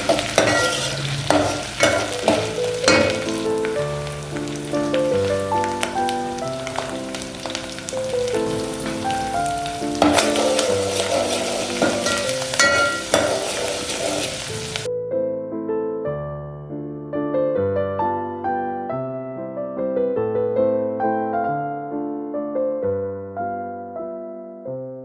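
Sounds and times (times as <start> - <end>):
food sizzling in a pan: 0.0 - 14.9
soft piano music: 0.0 - 25.0.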